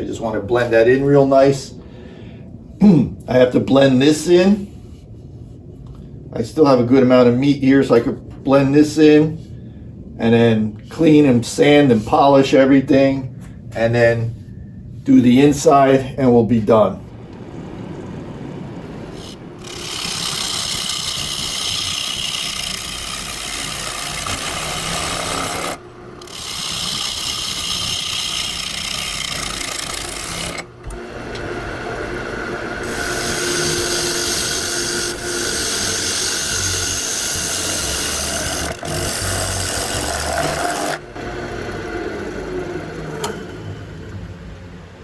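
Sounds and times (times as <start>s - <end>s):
lathe tool cutting wood: 18.8s - 44.6s
wood lathe running: 18.8s - 44.7s.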